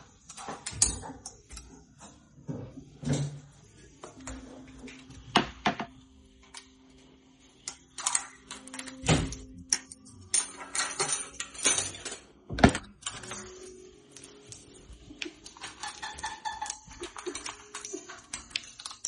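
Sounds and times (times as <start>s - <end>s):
crabs clicking and scraping: 13.0s - 19.0s.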